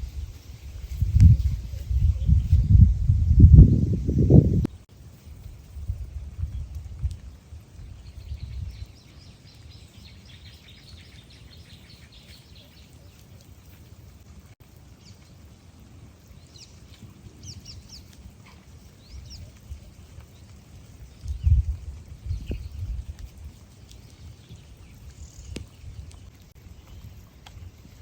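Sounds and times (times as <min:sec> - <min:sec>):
steady outdoor hiss: 0:00.0 - 0:28.0
birds chirping: 0:07.3 - 0:14.2, 0:16.2 - 0:28.0.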